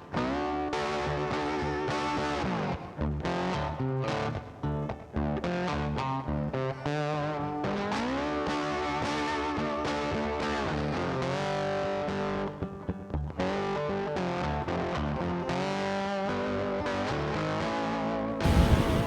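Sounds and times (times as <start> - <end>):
loud rush of noise: 18.4 - 19.0.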